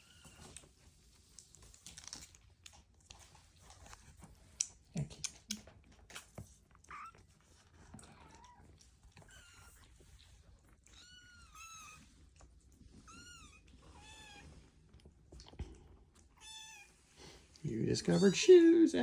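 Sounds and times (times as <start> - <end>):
kittens mewing: 17.8 - 18.7.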